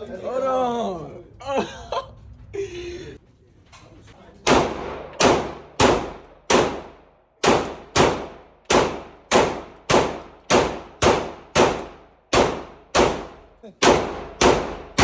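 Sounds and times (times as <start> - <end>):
handgun shots with ringing echo: 4.4 - 15.0.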